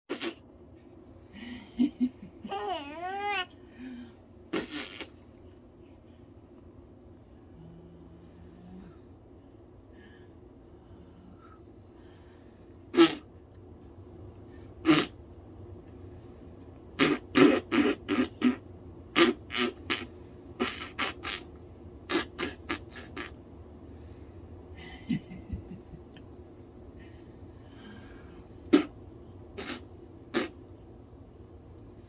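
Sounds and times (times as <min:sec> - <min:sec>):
animal making fart-like sputters: 0:00.1 - 0:00.4, 0:04.5 - 0:05.2, 0:12.9 - 0:13.2, 0:14.8 - 0:15.1, 0:17.0 - 0:18.6, 0:19.2 - 0:21.5, 0:22.1 - 0:23.4, 0:28.7 - 0:28.9, 0:29.6 - 0:30.6.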